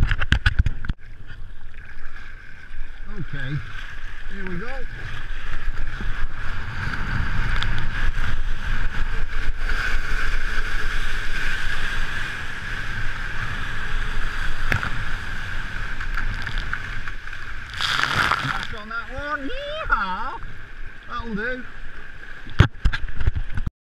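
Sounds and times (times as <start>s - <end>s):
surf rushing: 3.0s - 22.5s
wind on microphone: 4.3s - 19.8s.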